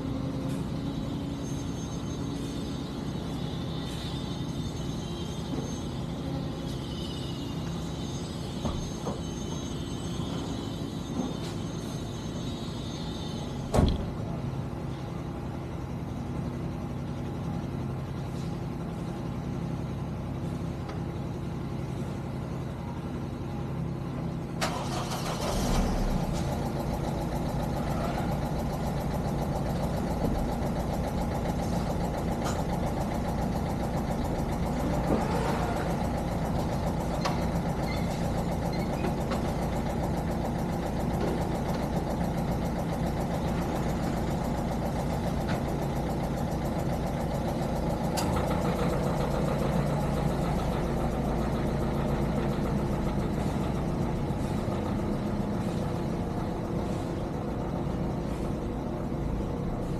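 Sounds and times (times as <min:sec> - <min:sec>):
car engine starting and idling: 0:00.0 - 0:59.9
thump: 0:13.7 - 0:14.1.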